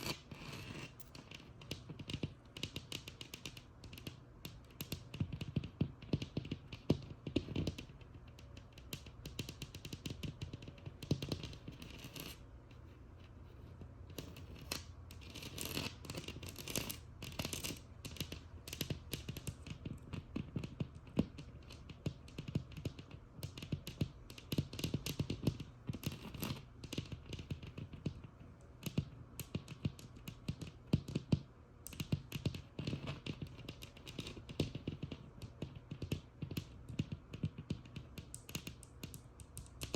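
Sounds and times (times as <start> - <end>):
rasping scratches on a wall: 0.0 - 2.2, 11.4 - 18.3
tapping on a textured wall: 0.9 - 12.4, 13.8 - 39.9.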